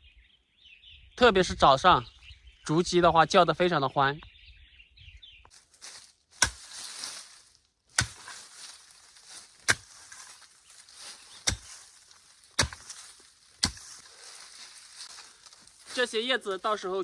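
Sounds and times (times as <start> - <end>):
rustle of soil and dry leaves: 5.4 - 17.0
heavy tool chopping into ground: 6.4 - 7.1, 7.9 - 14.1.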